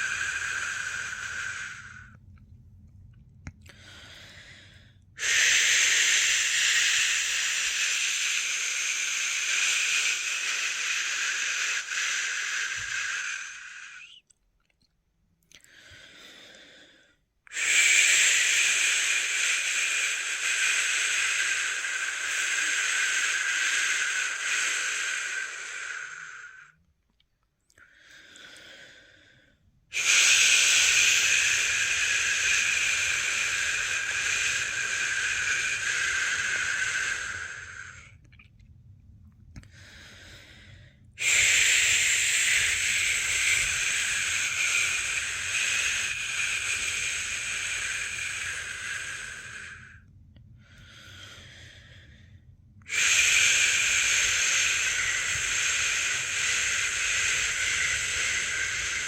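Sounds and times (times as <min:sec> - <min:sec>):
person shushing: 0:00.0 - 0:02.1, 0:05.2 - 0:14.2, 0:29.9 - 0:38.1, 0:41.2 - 0:49.9, 0:52.9 - 0:59.0.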